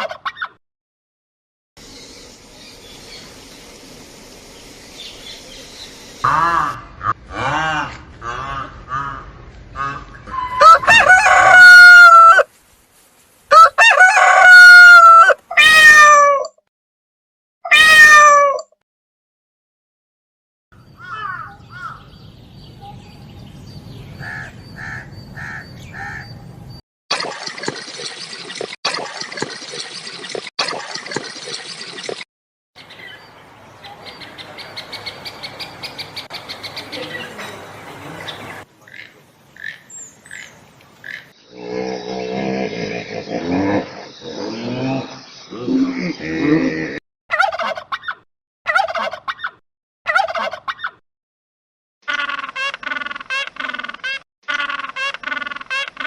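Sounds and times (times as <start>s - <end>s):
turkey gobbling: 0.0s - 0.6s, 6.2s - 12.4s, 13.5s - 15.4s, 47.3s - 51.0s, 52.1s - 56.0s
rough low animal sound: 41.5s - 47.0s.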